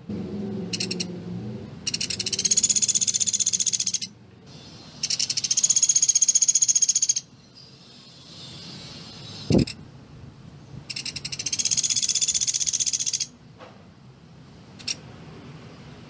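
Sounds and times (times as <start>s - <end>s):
woodpecker rattling trills: 0.8s - 1.1s, 1.9s - 4.1s, 5.0s - 7.3s, 10.9s - 13.3s.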